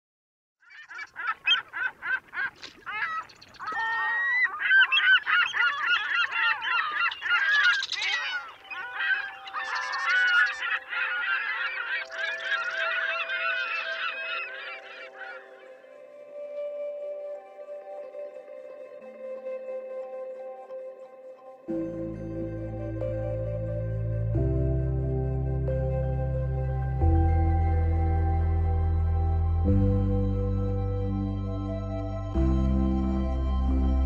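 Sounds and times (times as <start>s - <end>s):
birds calling: 0.6s - 15.9s
soft music with held notes: 3.8s - 34.0s.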